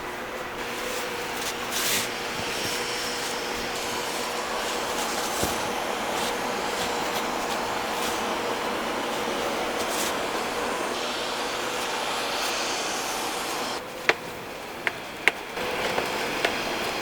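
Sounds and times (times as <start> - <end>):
snowboard scraping over snow: 0.6 - 13.8.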